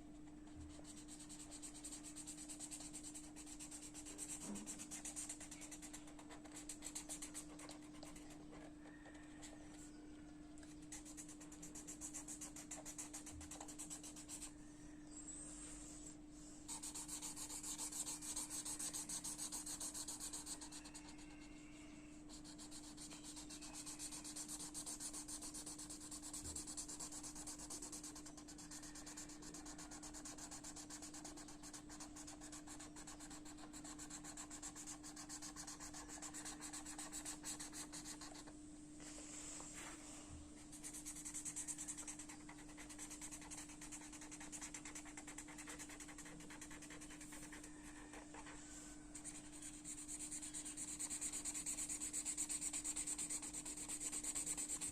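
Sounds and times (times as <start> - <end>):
low electrical hum: 0.0 - 54.9
colouring strokes on paper: 0.6 - 9.6, 10.9 - 14.5, 16.7 - 21.4, 22.3 - 38.5, 39.2 - 54.9.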